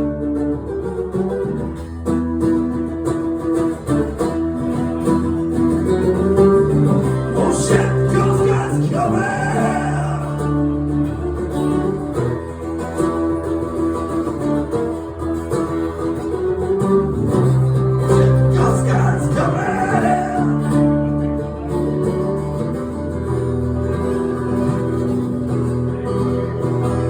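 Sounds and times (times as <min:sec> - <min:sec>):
acoustic guitars strumming: 0:00.0 - 0:27.0
person singing: 0:07.0 - 0:11.0, 0:18.0 - 0:21.4.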